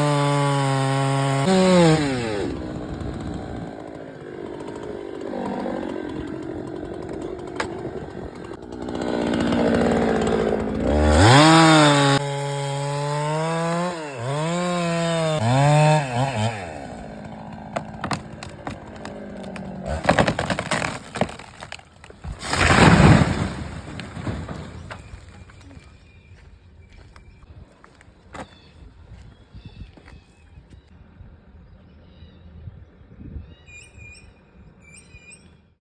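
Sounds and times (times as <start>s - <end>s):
chainsaw revving and cutting: 0.0s - 25.2s
tree crashing down: 0.0s - 25.6s
wood cracking: 0.0s - 25.9s.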